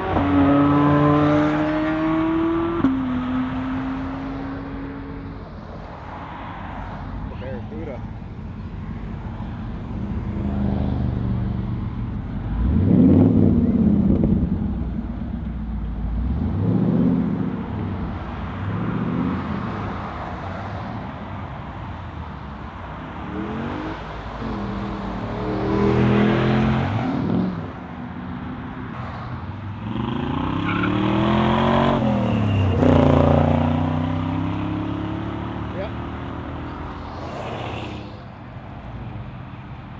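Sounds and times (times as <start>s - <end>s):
muscle car engines revving: 7.1s - 27.8s, 29.0s - 39.3s.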